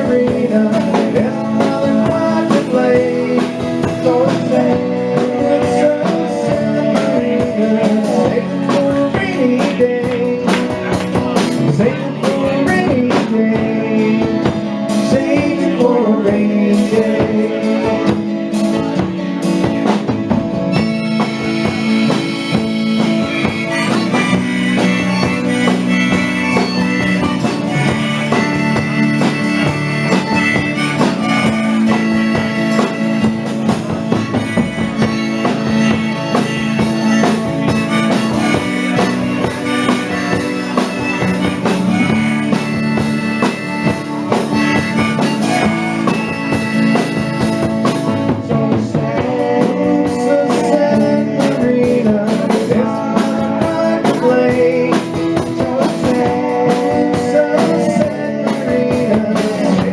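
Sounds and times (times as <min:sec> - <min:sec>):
live country-rock band playing: 0:00.0 - 0:59.9
lead instrument wavering melody: 0:20.8 - 0:47.9.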